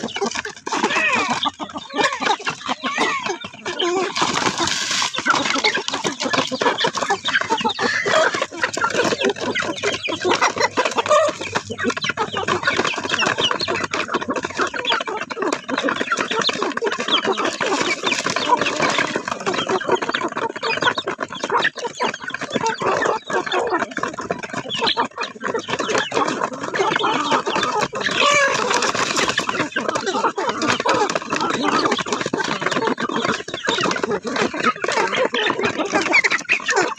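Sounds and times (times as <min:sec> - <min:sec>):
chickens clucking: 0:00.0 - 0:36.9.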